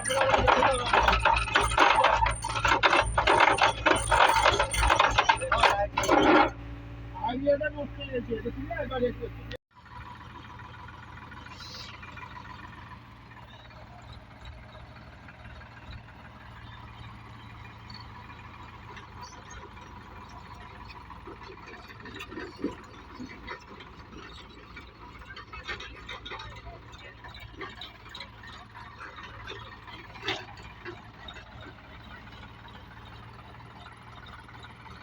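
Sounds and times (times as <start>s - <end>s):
clicks and rattles: 0.0s - 6.6s, 18.2s - 35.0s
tractor diesel engine droning: 0.0s - 35.0s.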